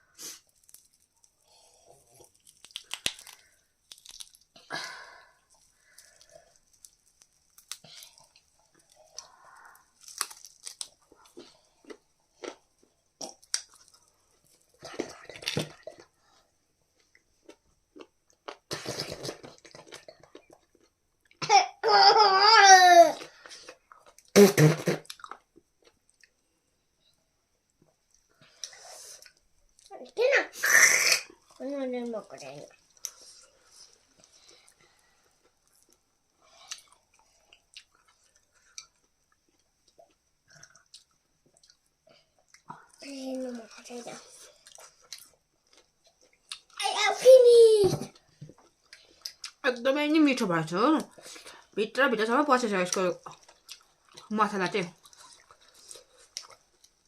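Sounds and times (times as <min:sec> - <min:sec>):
chewing and crunching: 0:00.4 - 0:04.6, 0:05.4 - 0:16.3, 0:17.0 - 0:21.4, 0:32.2 - 0:46.8, 0:48.1 - 0:49.7, 0:52.9 - 0:57.0
sharp crunches and clicks: 0:02.3 - 0:04.4.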